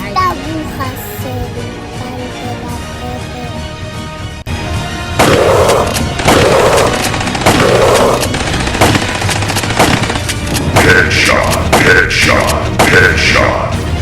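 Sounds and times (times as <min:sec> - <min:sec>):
rapid machine-gun fire: 0:05.2 - 0:13.4.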